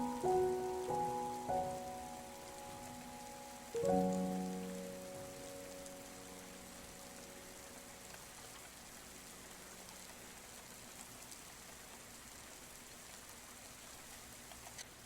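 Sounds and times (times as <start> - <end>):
low piano tone: 0.0 - 9.9
rain hissing: 0.0 - 15.0
raindrop ticks: 0.0 - 15.0.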